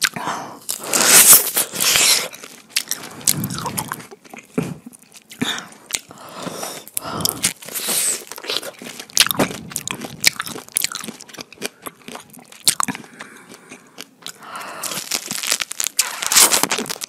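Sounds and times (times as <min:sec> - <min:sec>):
chewing and biting pineapple: 0:00.0 - 0:17.0
mouth clicks: 0:02.8 - 0:04.4.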